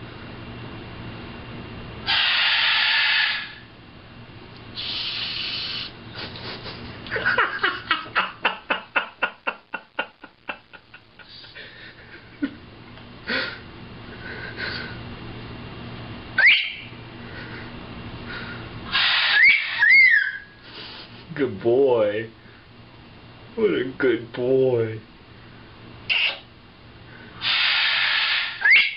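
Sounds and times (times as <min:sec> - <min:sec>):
macaws squawking: 0:02.1 - 0:03.6, 0:16.4 - 0:17.0, 0:18.9 - 0:20.6, 0:26.1 - 0:26.5, 0:27.4 - 0:28.9.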